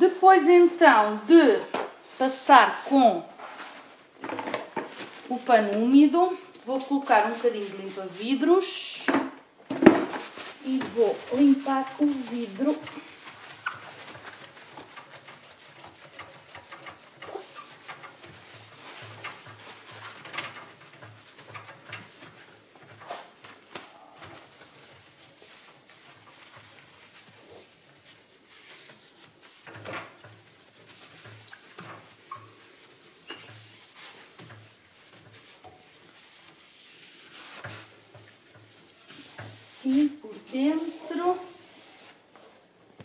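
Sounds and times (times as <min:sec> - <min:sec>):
cloth rubbing on glass: 0:05.0 - 0:08.8, 0:10.2 - 0:42.6
squeaks on glass: 0:33.2 - 0:33.6.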